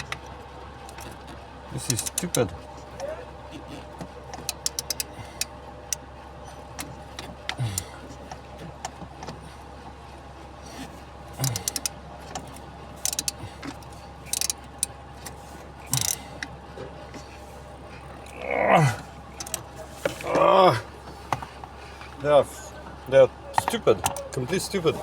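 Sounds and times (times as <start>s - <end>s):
steady low hum: 0.0s - 25.0s
hand tools clicking and scraping: 0.9s - 2.5s, 3.5s - 5.5s, 6.8s - 8.4s, 10.7s - 16.5s, 17.2s - 22.7s, 23.5s - 25.0s.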